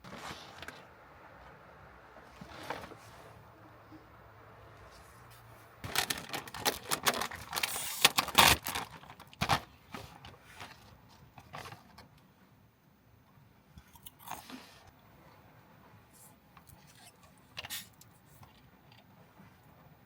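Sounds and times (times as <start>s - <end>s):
packaging rustling and tearing: 5.8s - 12.0s.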